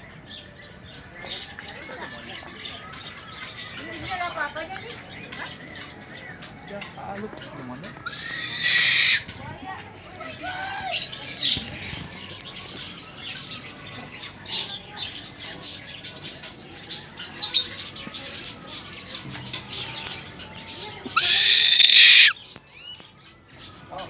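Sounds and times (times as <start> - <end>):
owl screech: 8.1 - 9.2, 21.2 - 22.4.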